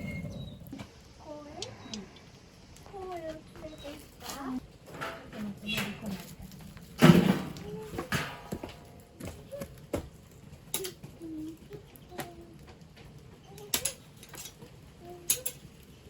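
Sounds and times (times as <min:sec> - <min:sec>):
burning branches crackling: 0:00.0 - 0:16.0.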